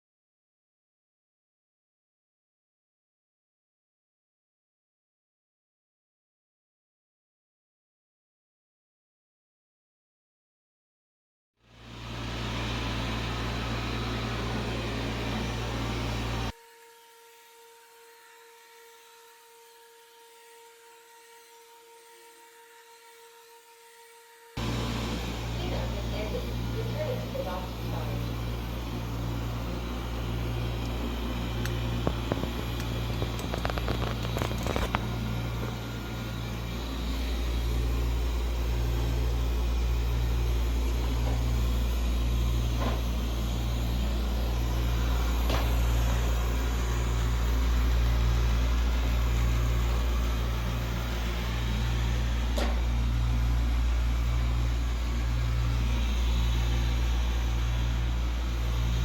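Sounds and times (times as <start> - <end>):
robot vacuum motor hum: 11.8 - 16.6, 24.6 - 59.0.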